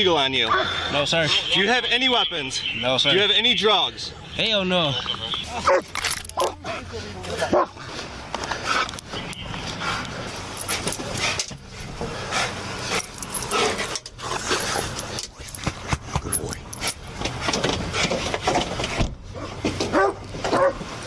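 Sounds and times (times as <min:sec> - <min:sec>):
metallic clinking and jangling: 0:05.9 - 0:06.6, 0:10.4 - 0:11.8, 0:12.8 - 0:17.2.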